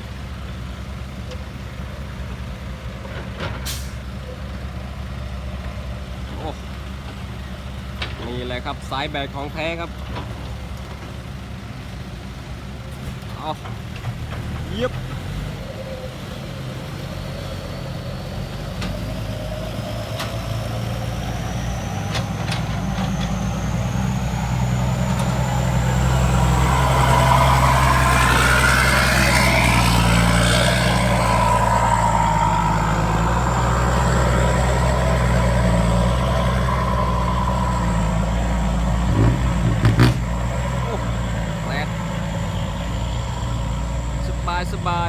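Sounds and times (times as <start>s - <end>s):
diesel truck engine under load: 0.0s - 45.0s
high whistle rising in pitch: 19.4s - 39.6s.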